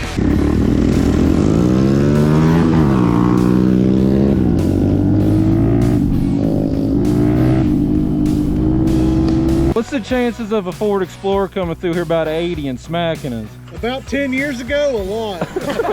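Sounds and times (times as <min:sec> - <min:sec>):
mini motorcycle engine accelerating: 0:00.0 - 0:09.7.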